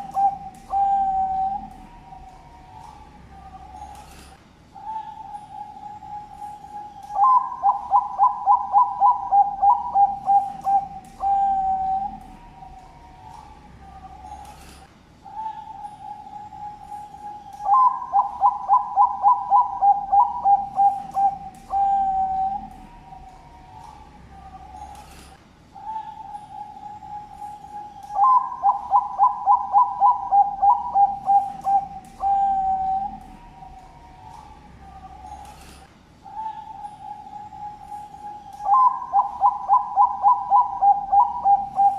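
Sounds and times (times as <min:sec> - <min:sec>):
dove cooing: 0:00.0 - 0:41.9
dove song of clipped notes: 0:00.0 - 0:41.9
faint steady coo: 0:00.0 - 0:41.9.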